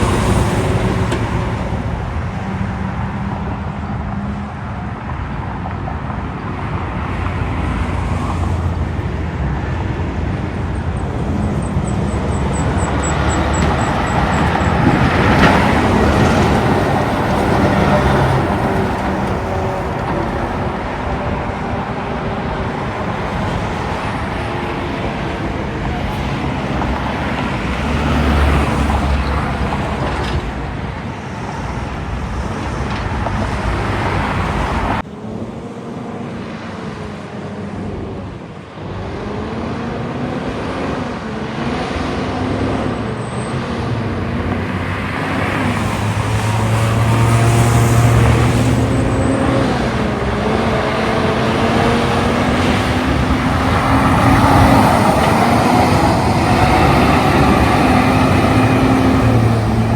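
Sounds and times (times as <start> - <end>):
cars and trucks passing: 0.0 - 59.9
truck engine shifting gears: 7.5 - 35.0, 37.8 - 59.9.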